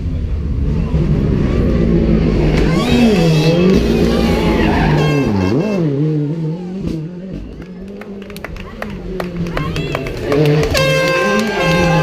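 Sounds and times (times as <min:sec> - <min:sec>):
rally car engine revving: 0:00.0 - 0:12.0
tyres squealing on tarmac: 0:02.6 - 0:05.9.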